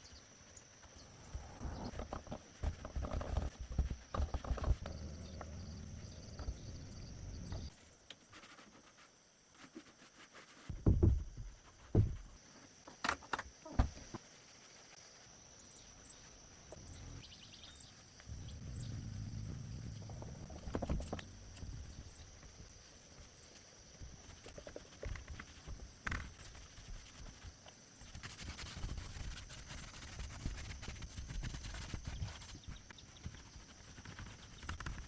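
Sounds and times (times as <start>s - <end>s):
irregular knocks and thumps: 1.3s - 7.7s, 10.7s - 14.3s, 18.3s - 22.8s
low steady rumble: 18.3s - 22.3s.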